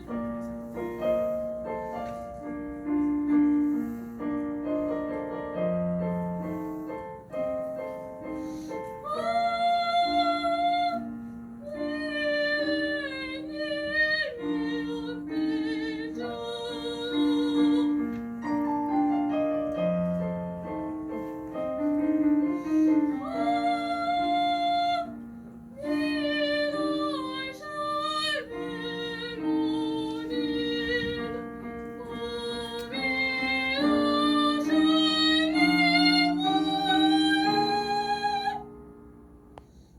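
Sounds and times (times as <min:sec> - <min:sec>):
piano accompaniment: 0:00.0 - 0:39.9
soprano singing with vibrato: 0:08.9 - 0:18.2, 0:22.7 - 0:25.2, 0:25.8 - 0:38.7.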